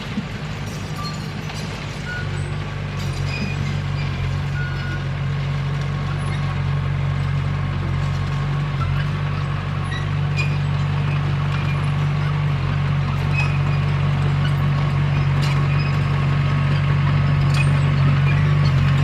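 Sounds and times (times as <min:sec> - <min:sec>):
bulldozer diesel engine running: 0:00.0 - 0:19.0
faint high squeaks: 0:02.0 - 0:05.0.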